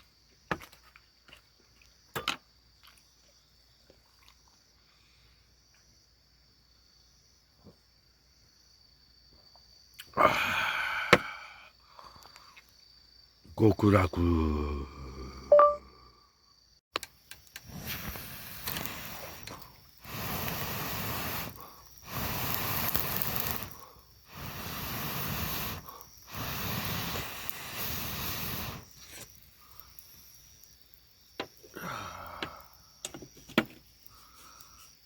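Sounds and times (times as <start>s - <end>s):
hissing rushes of air: 17.7s - 29.0s.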